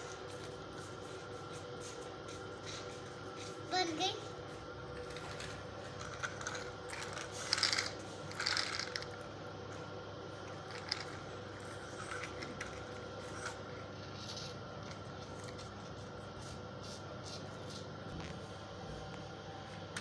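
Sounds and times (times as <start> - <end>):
plastic toy rattling and clicking: 5.2 - 9.2, 10.7 - 13.6.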